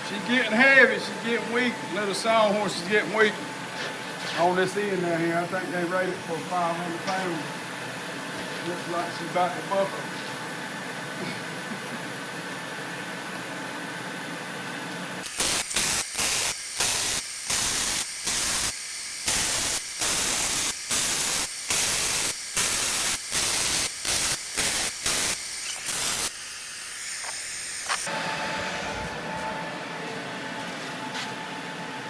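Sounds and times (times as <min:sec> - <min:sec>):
welding arc crackling: 0:15.2 - 0:29.5.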